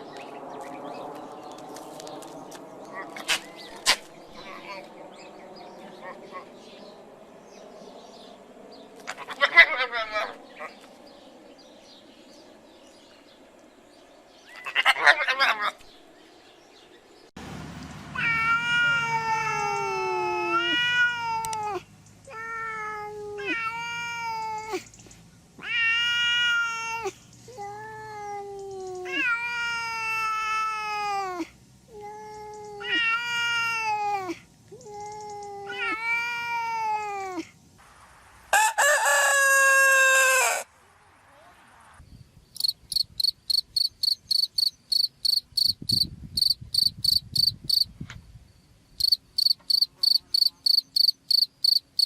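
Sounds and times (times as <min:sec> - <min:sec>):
louder cat call: 0:18.2 - 0:24.7
cat meowing: 0:18.2 - 0:24.8, 0:25.6 - 0:37.5.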